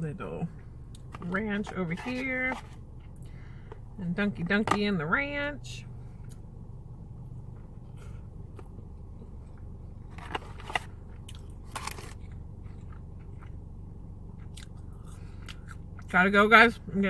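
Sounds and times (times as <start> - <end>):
steady low hum: 0.0 - 17.0
crunchy bites and chewing: 8.5 - 13.6, 14.3 - 16.1.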